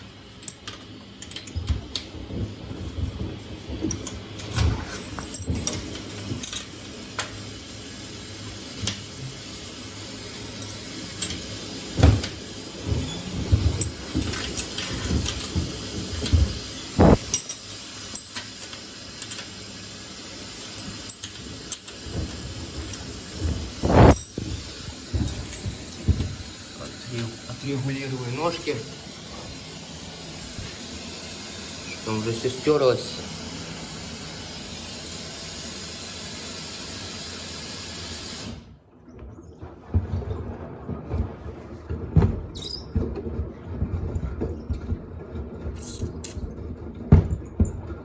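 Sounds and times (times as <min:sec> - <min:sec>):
washing machine hiss: 0:00.0 - 0:38.8
washing machine knocks and thumps: 0:01.5 - 0:06.5, 0:11.3 - 0:17.3, 0:22.0 - 0:27.6, 0:39.2 - 0:48.0.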